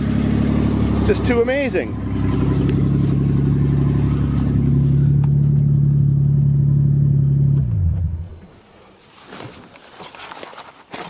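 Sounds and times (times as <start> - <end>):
car engine running and switching off: 0.0 - 8.5.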